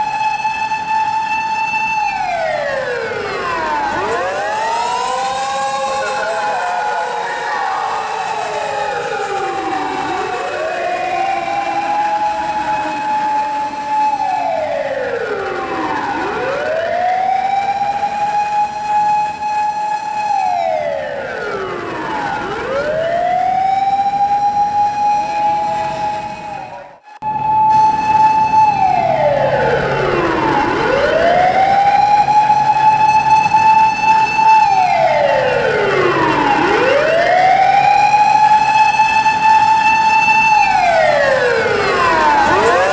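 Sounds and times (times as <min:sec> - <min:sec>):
fire engine siren wailing: 0:00.0 - 0:42.9.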